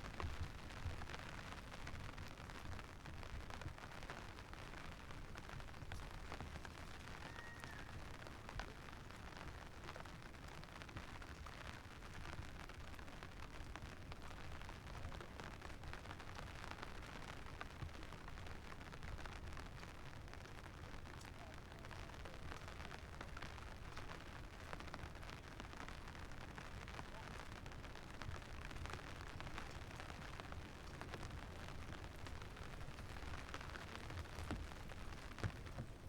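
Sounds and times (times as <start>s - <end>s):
steady rain falling: 0.0s - 36.0s
raindrop clicks: 25.9s - 36.0s.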